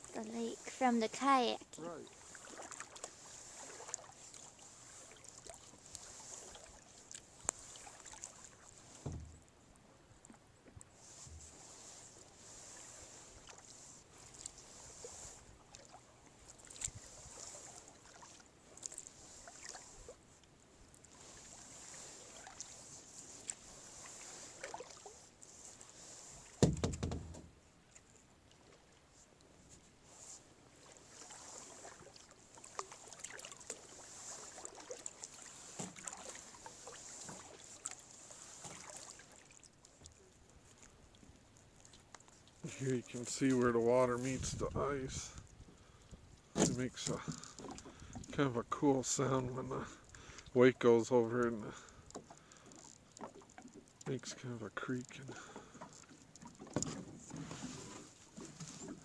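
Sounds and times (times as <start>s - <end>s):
paddle swishes in water: 0.0s - 59.0s
small irregular clicks: 39.5s - 42.6s, 51.4s - 54.2s.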